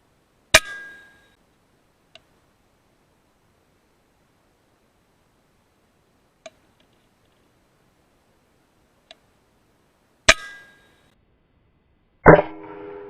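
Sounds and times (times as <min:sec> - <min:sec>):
faint clicks: 0:02.1 - 0:02.4, 0:06.4 - 0:07.6, 0:09.0 - 0:09.3.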